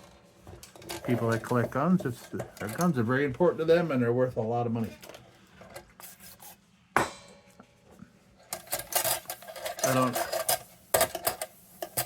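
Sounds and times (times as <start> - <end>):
sharp knock with metallic ring: 7.0 - 7.5.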